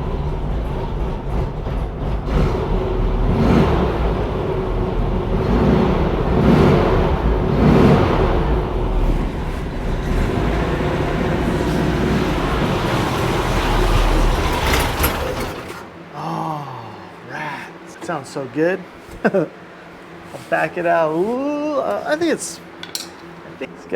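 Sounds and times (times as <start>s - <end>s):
engine idling roughly: 0.0s - 15.8s.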